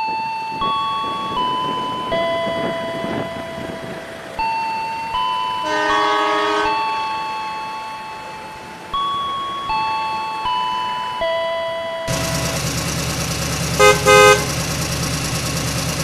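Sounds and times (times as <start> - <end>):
level crossing warning chime: 0.0 - 12.6
train horn: 5.6 - 7.0, 13.8 - 14.6.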